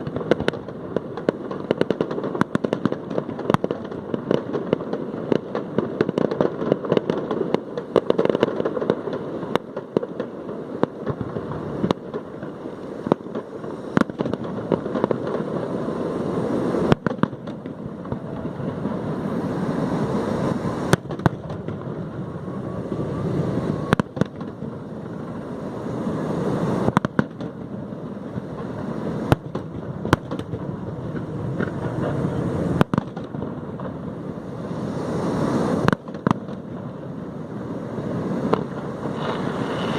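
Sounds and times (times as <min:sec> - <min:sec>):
firework bangs: 0:00.0 - 0:39.9
fireworks crackling: 0:00.0 - 0:39.9.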